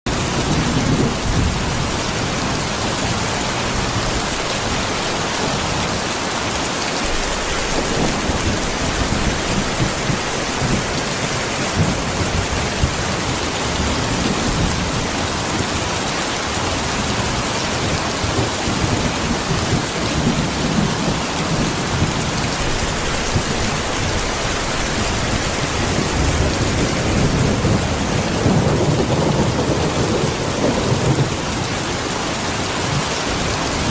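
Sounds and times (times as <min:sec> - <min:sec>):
thunder rumbles: 0:00.1 - 0:16.1, 0:16.8 - 0:33.9
heavy rain: 0:00.1 - 0:33.9.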